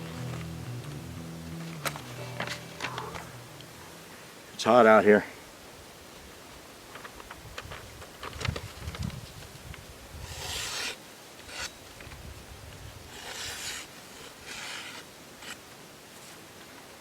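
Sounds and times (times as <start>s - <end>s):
rasping scrapes: 10.2s - 11.8s, 13.1s - 15.6s.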